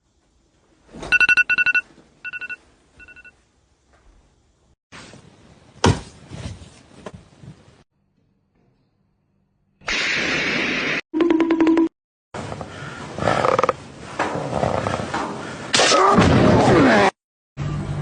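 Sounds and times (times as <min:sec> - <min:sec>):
telephone ringtone trilling: 0:01.1 - 0:03.3
rustling noise: 0:04.9 - 0:07.8.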